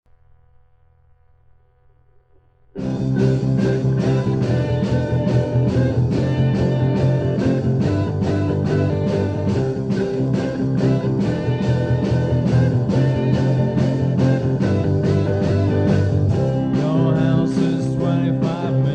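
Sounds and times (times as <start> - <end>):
rock band with guitar and drums: 2.8 - 18.9.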